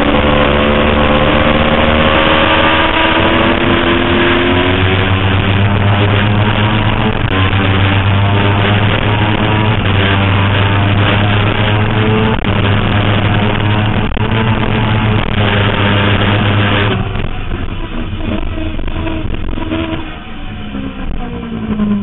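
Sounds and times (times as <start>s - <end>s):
motorcycle engine at high revs: 0.0s - 22.0s.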